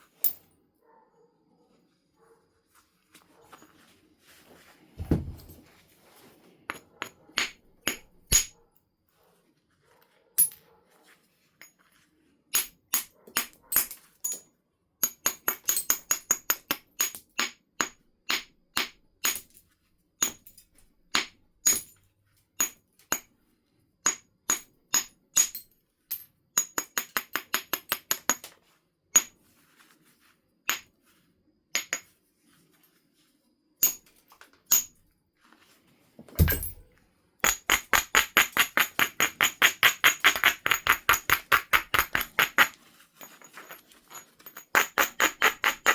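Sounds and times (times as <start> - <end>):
knapping tool striking flint: 7.0 - 8.5, 36.4 - 36.8, 37.4 - 42.8, 44.7 - 45.9.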